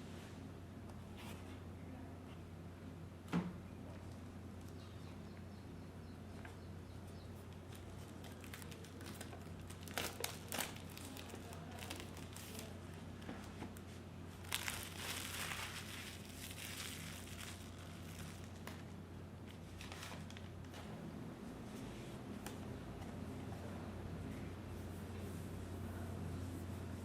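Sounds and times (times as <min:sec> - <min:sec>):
steady low hum: 0:00.0 - 0:27.0
plastic packaging crinkling: 0:07.5 - 0:20.7.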